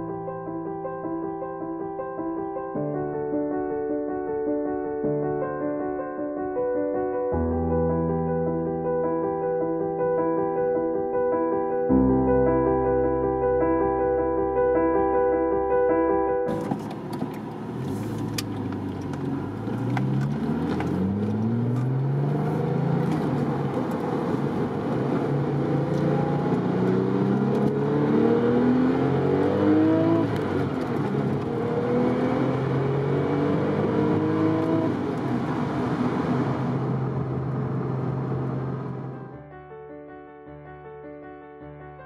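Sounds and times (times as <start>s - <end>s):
car engine accelerating through gears: 16.5s - 39.3s.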